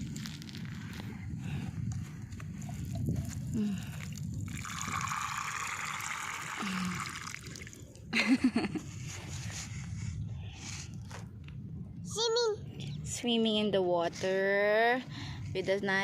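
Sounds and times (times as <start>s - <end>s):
low steady rumble: 0.0s - 16.0s
water trickling: 4.1s - 8.0s.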